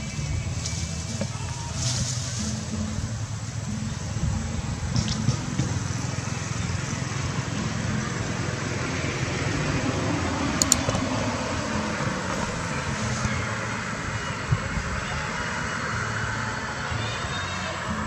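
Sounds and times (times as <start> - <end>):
distant road traffic: 0.0 - 18.0
sharp clicks: 10.6 - 11.0.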